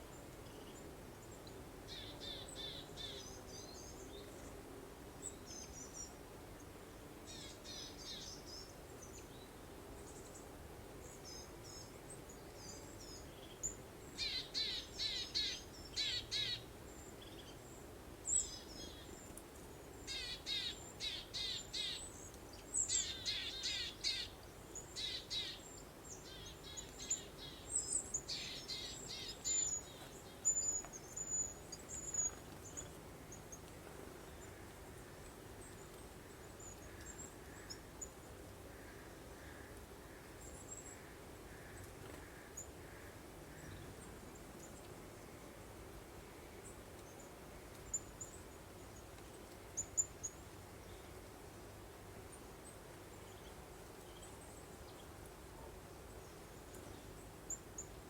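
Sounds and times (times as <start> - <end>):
faint breeze-like hiss: 0.0 - 58.0
songbirds singing: 11.1 - 45.3.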